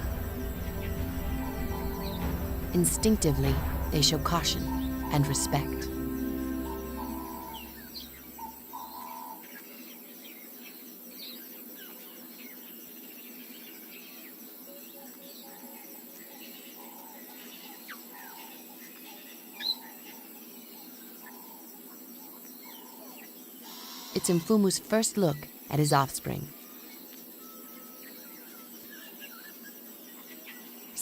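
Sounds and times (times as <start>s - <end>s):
birds chirping and calling: 0.0s - 9.5s
insect chorus: 0.0s - 31.0s.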